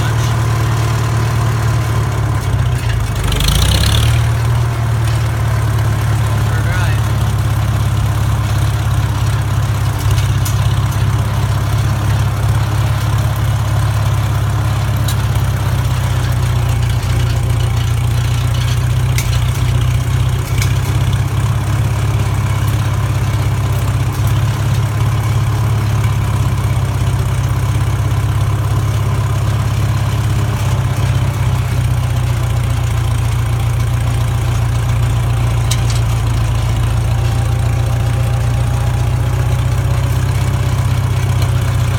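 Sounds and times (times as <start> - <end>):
tractor engine droning: 0.0 - 41.9.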